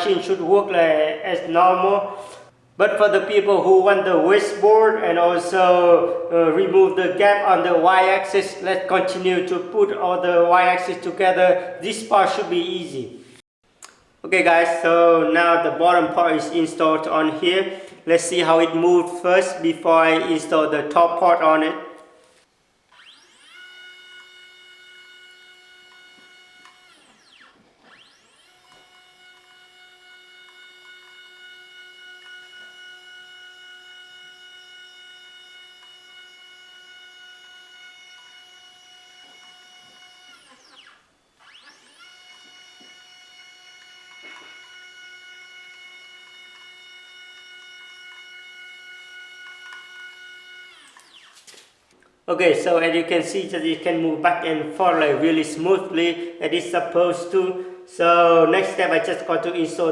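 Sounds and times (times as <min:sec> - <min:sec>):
stepper motor whine: 0:22.9 - 0:51.5.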